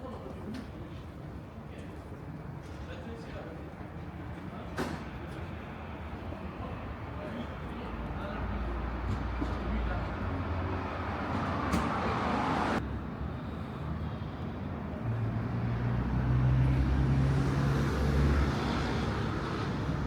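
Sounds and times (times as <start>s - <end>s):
rush of traffic: 3.6s - 20.0s
vehicle engine humming: 16.3s - 20.0s.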